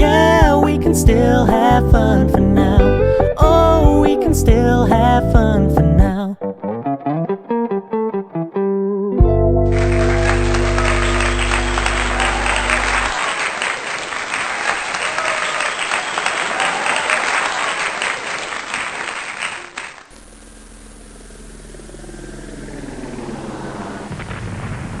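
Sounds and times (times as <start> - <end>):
audience applause and cheering: 9.6 - 20.2
low rumble with rushing noise: 20.2 - 25.0.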